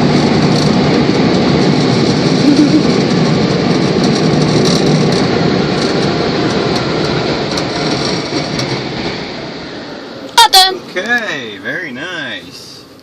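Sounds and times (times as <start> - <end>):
car wash air dryers blowing: 0.0 - 13.0.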